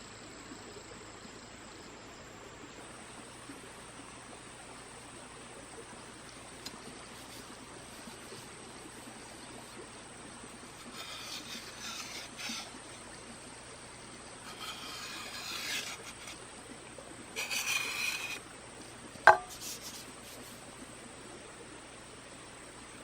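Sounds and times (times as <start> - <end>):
blade scraping bamboo: 6.6 - 13.6, 14.2 - 18.5, 19.1 - 20.7
sharp knock: 19.3 - 19.6.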